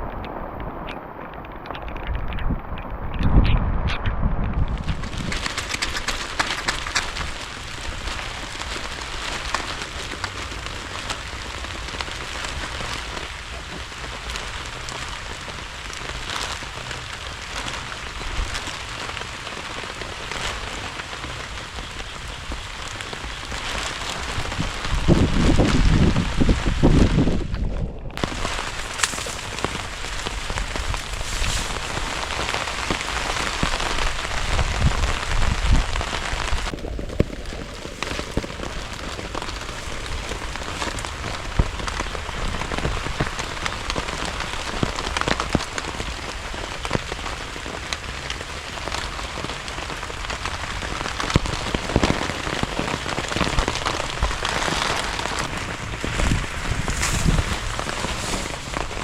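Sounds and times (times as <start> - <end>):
heavy rain drops hitting surface: 0.0 - 59.0.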